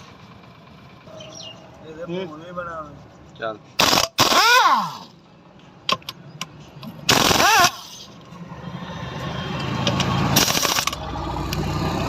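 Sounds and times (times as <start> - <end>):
low engine-like rumble: 0.0 - 3.7
pneumatic impact wrench bursts: 3.8 - 5.2, 7.0 - 8.2, 9.9 - 11.1.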